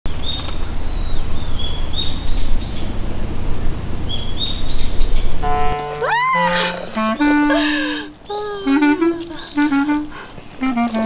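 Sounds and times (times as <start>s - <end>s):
bird song: 0.1s - 3.0s, 3.6s - 7.3s, 9.4s - 10.1s
steady low rumble: 0.1s - 9.2s.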